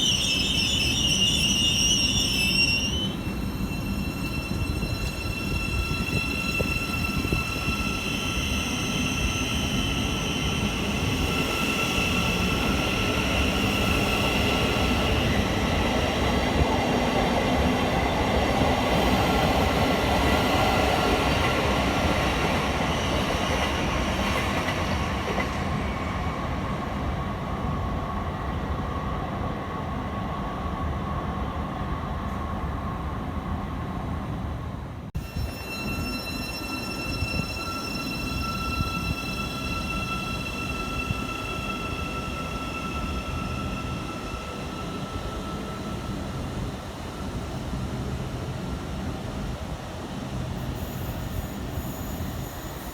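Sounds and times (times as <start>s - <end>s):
train high-pitched whine: 0.0s - 26.2s, 35.2s - 52.9s
train running: 0.0s - 26.6s, 35.1s - 52.9s.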